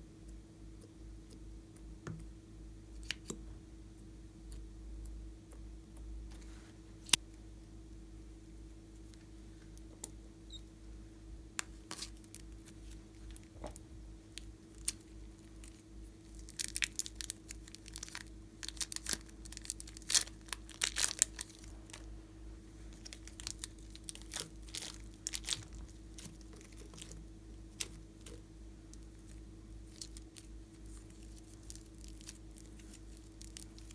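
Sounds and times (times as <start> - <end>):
low electrical hum: 0.0 - 33.9
slime crackling and popping: 14.4 - 22.1, 22.9 - 33.9.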